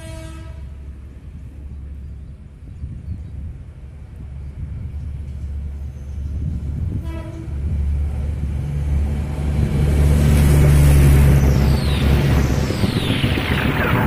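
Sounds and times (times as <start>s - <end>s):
train horn toot: 0.0s - 0.8s, 6.9s - 7.7s
train rumble: 0.0s - 14.0s.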